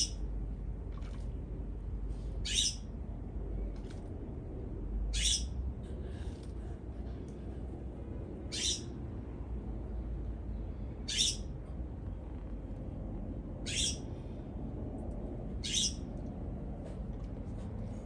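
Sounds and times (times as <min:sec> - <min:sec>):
bird giving harsh calls: 0:02.4 - 0:02.8, 0:05.2 - 0:05.5, 0:08.5 - 0:08.9, 0:11.1 - 0:11.4, 0:13.7 - 0:14.0, 0:15.6 - 0:16.0.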